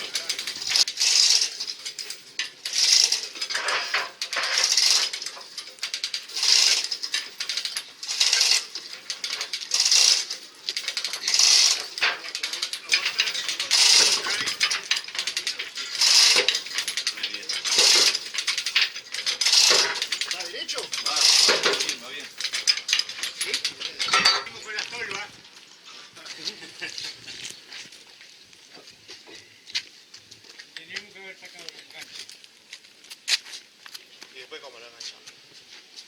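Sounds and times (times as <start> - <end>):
metallic rattling and scraping: 0.0 - 25.6.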